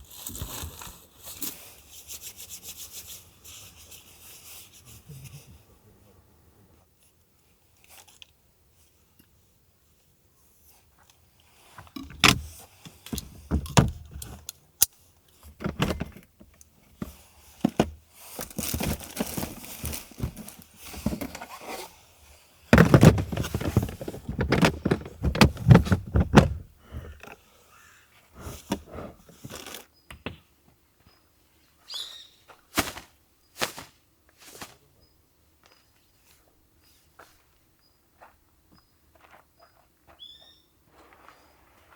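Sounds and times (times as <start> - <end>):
objects being handled: 11.8 - 14.6, 15.4 - 21.9, 22.7 - 27.3.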